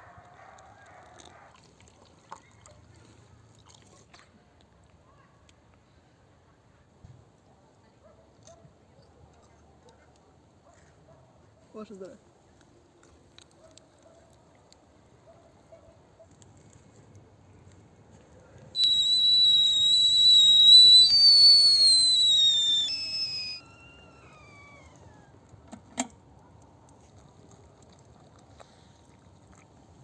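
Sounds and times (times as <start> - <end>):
high whistling tone: 18.8 - 25.3.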